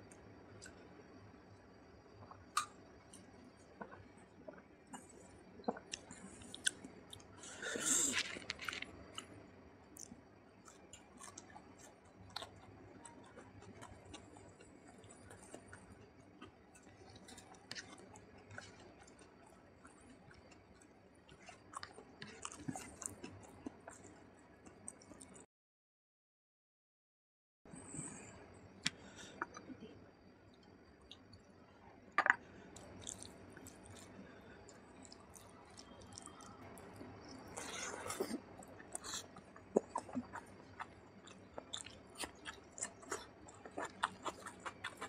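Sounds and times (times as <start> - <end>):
close chewing with mouth clicks: 2.6 - 9.4, 10.0 - 25.4, 32.7 - 45.0.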